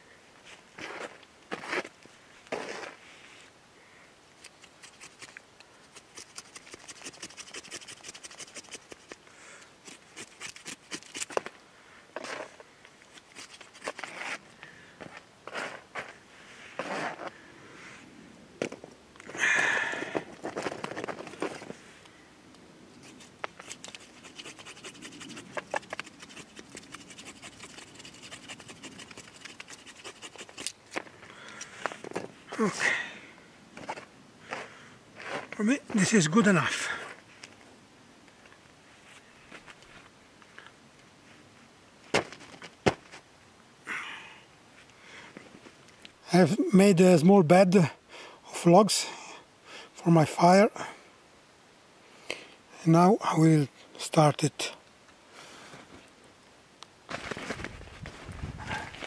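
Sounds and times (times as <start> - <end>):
knife scraping wood: 4.4 - 9.2, 9.8 - 11.5, 12.2 - 14.4, 16.8 - 17.3, 23.0 - 31.0.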